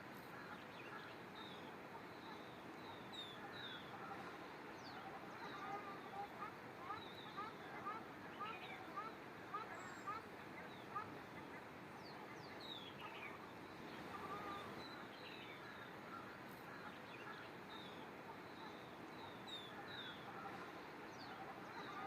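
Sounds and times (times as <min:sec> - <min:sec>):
steady background hiss: 0:00.0 - 0:22.0
birds chirping: 0:00.2 - 0:22.0.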